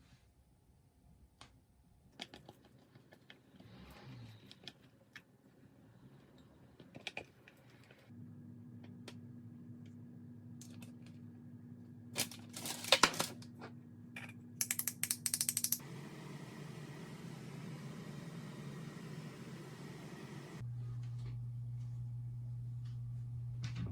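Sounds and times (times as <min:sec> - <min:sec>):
appliance hum: 0:03.4 - 0:23.9
fast sharp clicks: 0:14.6 - 0:15.8.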